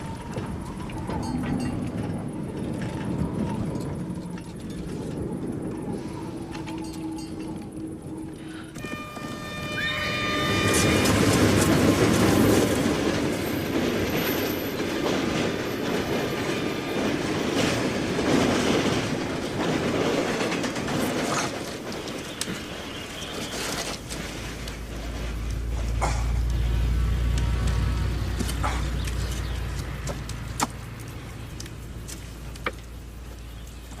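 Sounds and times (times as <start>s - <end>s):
train wheels clattering on track: 8.7s - 34.0s.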